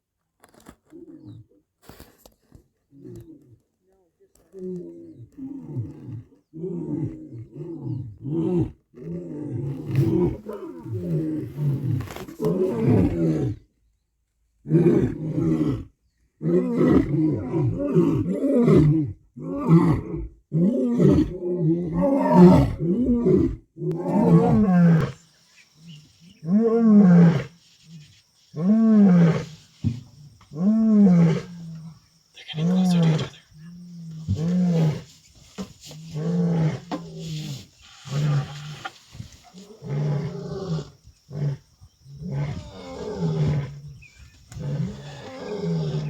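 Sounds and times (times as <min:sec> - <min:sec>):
lion roaring: 0:16.4 - 0:25.2, 0:30.3 - 0:35.1, 0:36.1 - 0:37.4, 0:39.5 - 0:46.0.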